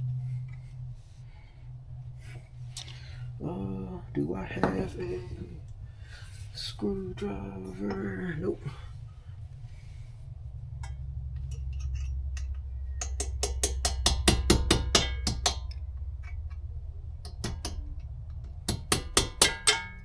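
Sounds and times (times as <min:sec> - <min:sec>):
hammer striking metal: 0:12.9 - 0:15.8, 0:18.7 - 0:20.0.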